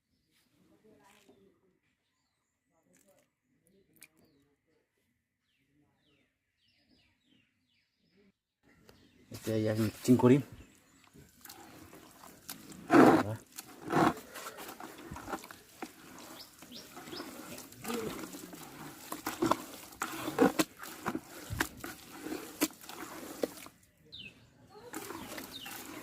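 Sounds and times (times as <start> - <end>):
feed being stirred by hand: 9.3 - 23.8, 24.7 - 26.0.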